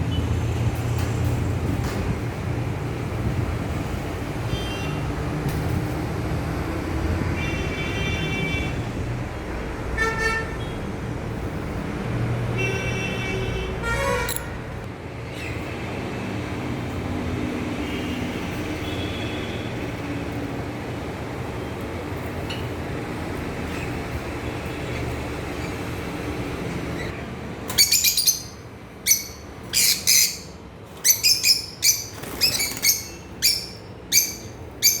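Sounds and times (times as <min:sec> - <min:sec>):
road traffic rumble: 0:00.0 - 0:35.0
vehicle horns tooting: 0:10.0 - 0:10.8, 0:12.6 - 0:14.7.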